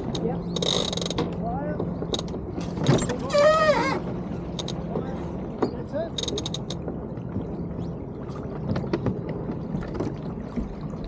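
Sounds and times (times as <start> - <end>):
wind and water rushing: 0.0 - 11.0
winch ratcheting clicks: 4.6 - 4.8, 6.2 - 6.8.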